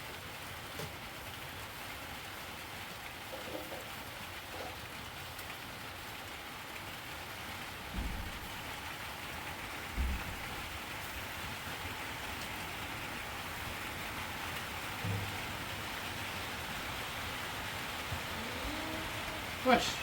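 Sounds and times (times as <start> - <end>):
heavy rainfall: 0.0 - 20.0
dull low thumps: 9.9 - 10.7, 15.0 - 16.0.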